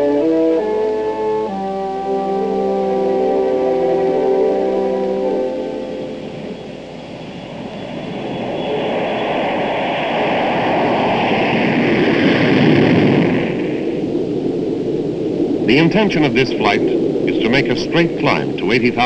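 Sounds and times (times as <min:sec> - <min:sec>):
jet engines rushing: 0:00.0 - 0:19.0.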